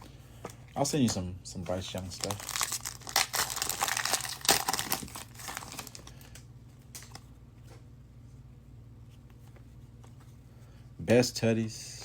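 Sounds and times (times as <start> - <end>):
wrapper crinkling and tearing: 2.1 - 6.3.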